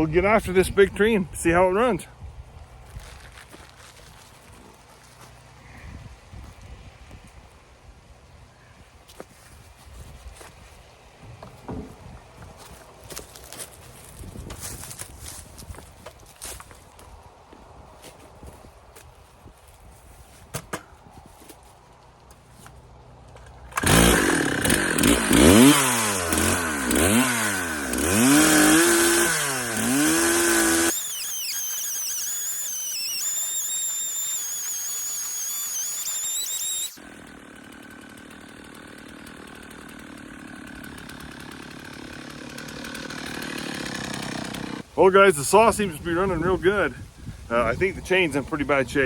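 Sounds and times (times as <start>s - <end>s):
chainsaw revving and running: 23.7s - 44.9s.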